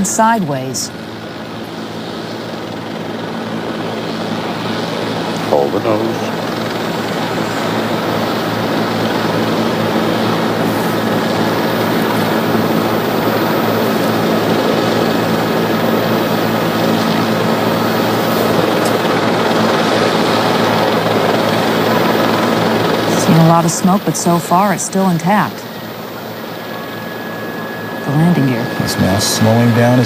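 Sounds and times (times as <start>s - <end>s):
helicopter rotor and engine drone: 0.0s - 30.0s.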